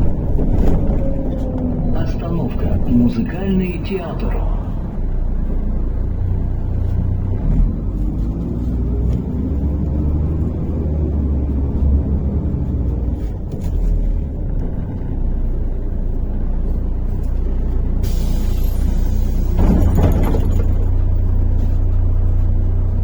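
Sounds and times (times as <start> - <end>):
bus interior engine and road rumble: 0.0 - 23.0
hiss: 18.0 - 19.6.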